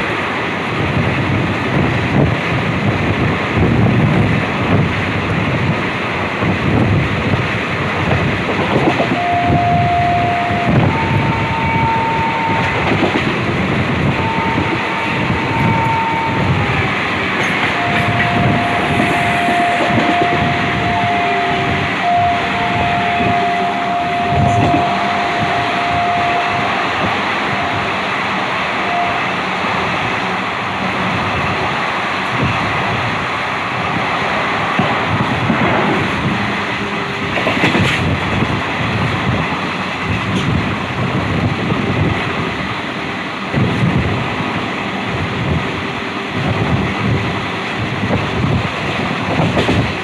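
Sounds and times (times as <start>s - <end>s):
train wheels rumbling on rails: 0.0s - 50.0s
steady whining tone: 9.0s - 33.1s.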